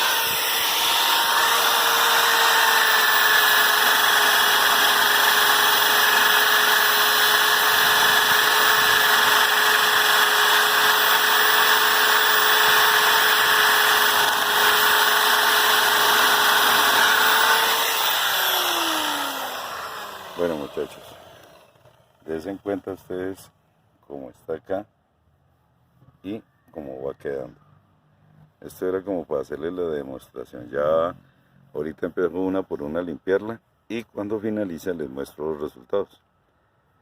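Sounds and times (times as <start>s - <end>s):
electric drill motor whine: 0.0s - 22.3s.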